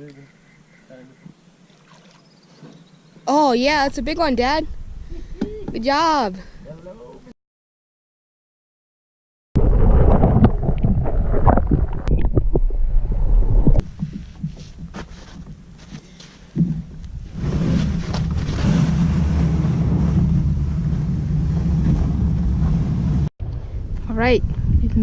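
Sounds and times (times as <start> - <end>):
wind blowing across microphone: 16.6 - 25.0.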